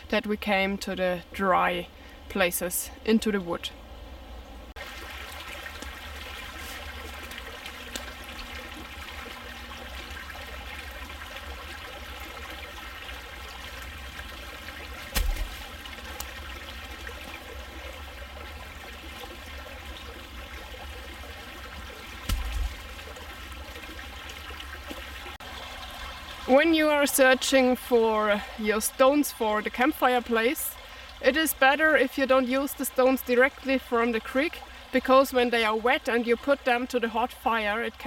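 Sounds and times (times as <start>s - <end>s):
creek trickling over stones: 4.7s - 38.0s
dull thumps: 15.0s - 15.7s, 22.2s - 23.0s.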